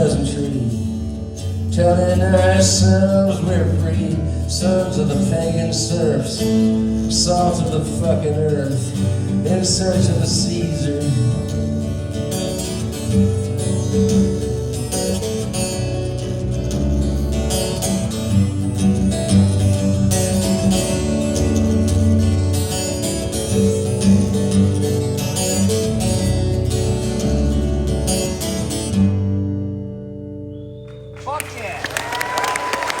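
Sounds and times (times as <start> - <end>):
live country-rock band playing: 0.0 - 33.0.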